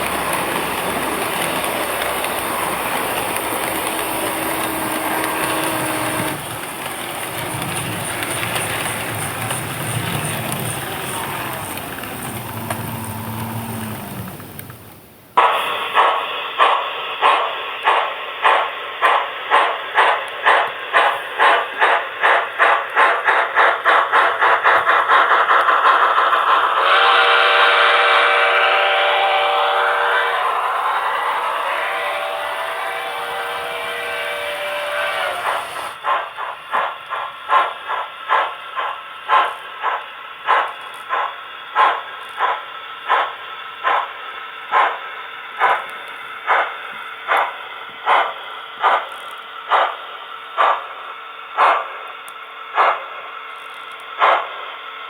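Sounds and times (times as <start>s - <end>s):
steam hiss: 0.0s - 55.0s
steam locomotive exhaust chuffs: 0.0s - 55.0s
steam whistle chord: 26.8s - 36.0s.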